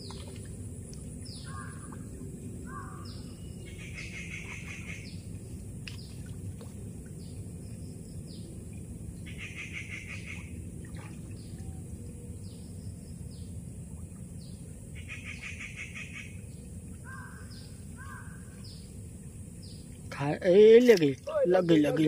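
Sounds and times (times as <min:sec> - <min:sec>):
lower bird calls: 0:01.2 - 0:05.3, 0:09.2 - 0:10.6, 0:11.2 - 0:19.0
bird trilling: 0:01.3 - 0:01.9, 0:02.7 - 0:05.1, 0:17.0 - 0:18.5.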